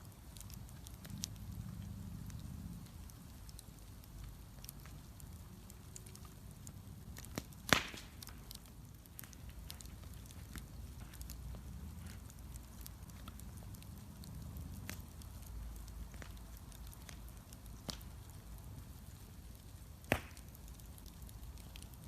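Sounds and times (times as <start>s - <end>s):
bonfire rumbling and crackling: 0.0s - 22.0s
loud pop from fire: 7.2s - 8.4s, 20.0s - 20.6s.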